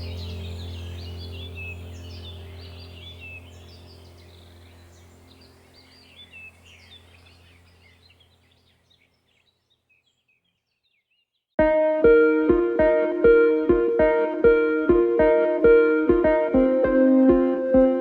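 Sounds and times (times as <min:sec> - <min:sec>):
low steady drone: 0:00.0 - 0:07.5
small birds chirping: 0:00.0 - 0:11.6.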